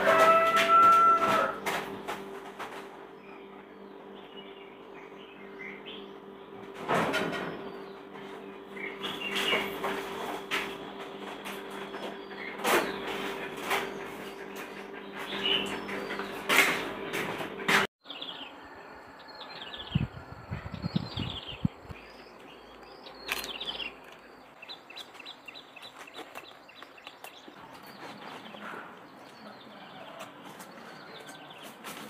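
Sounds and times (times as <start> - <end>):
steady low hum: 1.5 - 30.4
small birds chirping: 19.3 - 31.8.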